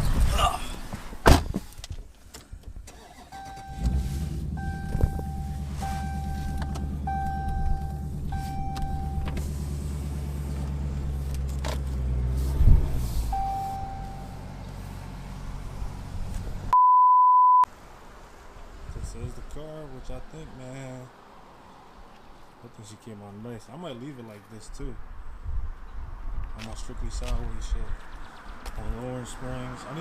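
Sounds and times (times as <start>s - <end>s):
car engine starting and idling: 2.8s - 16.8s
car chime dinging: 4.6s - 9.4s, 13.3s - 14.4s.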